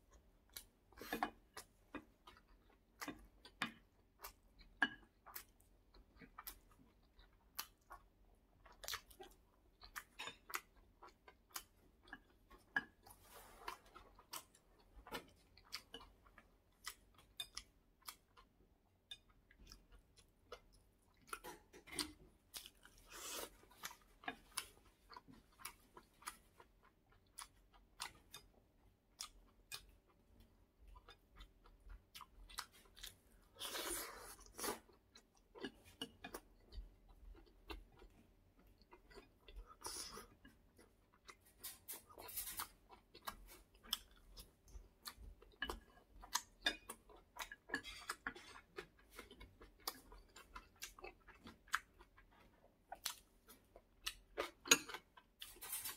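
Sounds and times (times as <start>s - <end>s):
person chewing food: 0.0s - 55.9s.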